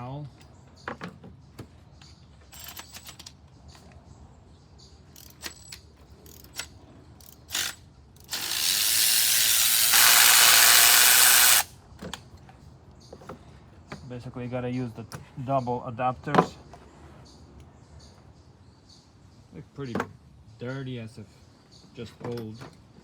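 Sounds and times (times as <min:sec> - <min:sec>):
ratchet clicking and knocking: 0:02.5 - 0:03.4, 0:05.1 - 0:11.7
loud steady hissing rush: 0:08.3 - 0:11.8.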